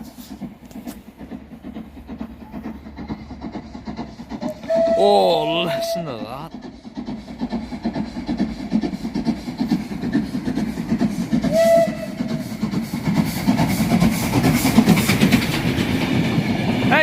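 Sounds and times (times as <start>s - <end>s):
steam locomotive rumbling past: 0.0s - 17.0s
locomotive whistle: 4.5s - 6.3s, 11.4s - 12.5s.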